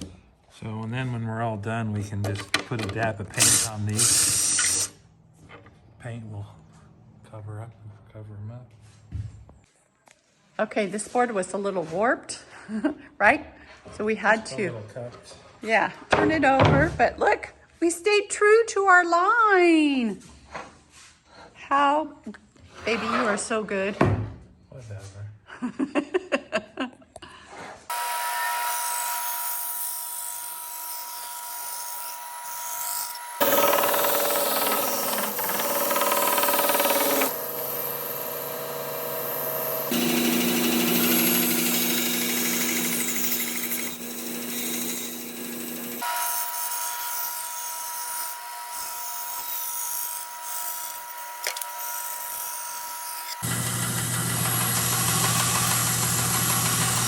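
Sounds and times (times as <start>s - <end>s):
power tools cutting wood: 3.0s - 5.0s, 27.9s - 57.0s.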